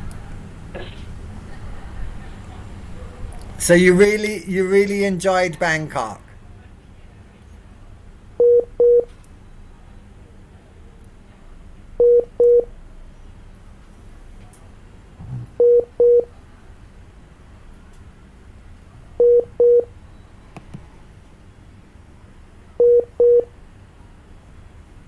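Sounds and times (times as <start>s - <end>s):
short telephone beeps: 8.4s - 9.1s, 12.0s - 12.7s, 22.8s - 23.5s.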